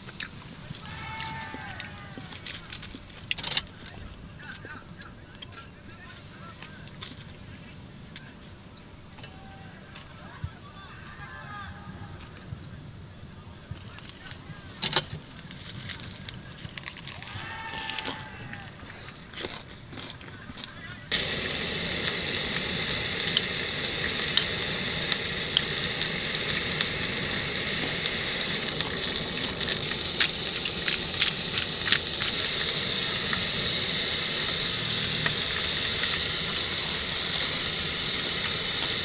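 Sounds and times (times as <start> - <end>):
meat sizzling: 0.6 - 2.4, 21.1 - 39.0
crackles and pops: 19.4 - 39.0.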